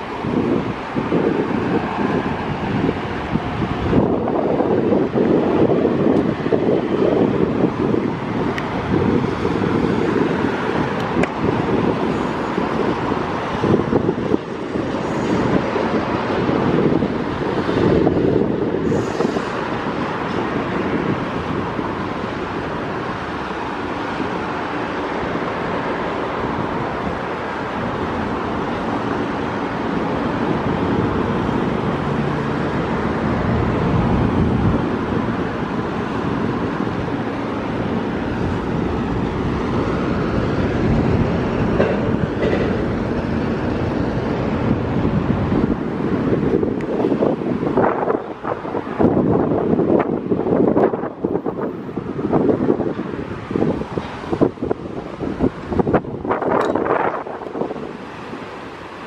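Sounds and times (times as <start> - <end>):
freight train wheels rolling: 0.0 - 51.7.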